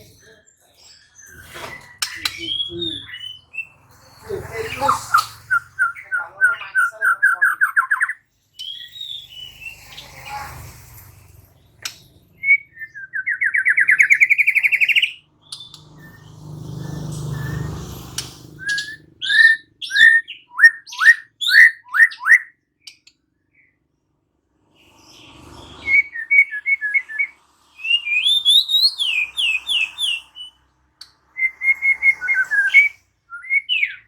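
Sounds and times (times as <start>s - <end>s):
sharp whistled bird notes: 12.4s - 22.5s, 25.6s - 30.6s, 31.4s - 34.0s
bird rising trill: 15.6s - 20.3s.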